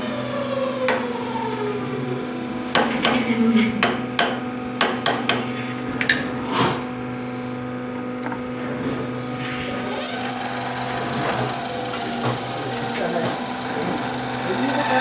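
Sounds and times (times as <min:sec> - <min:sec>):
machine humming: 0:09.2 - 0:15.0.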